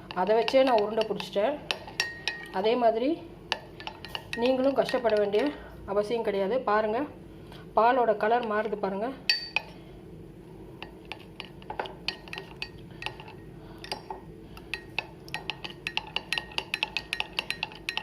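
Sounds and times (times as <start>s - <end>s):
spoon clinking against cup: 0.4s - 2.6s, 10.8s - 18.0s.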